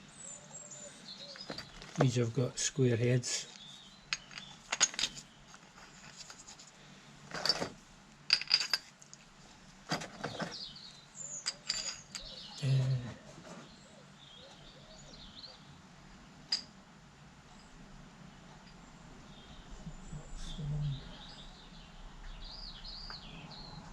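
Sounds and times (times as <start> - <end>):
faint bird chirps: 0.0 - 1.9, 10.3 - 15.8, 19.2 - 23.9
small metal parts clinking: 1.2 - 2.2, 3.5 - 9.3, 11.3 - 12.6.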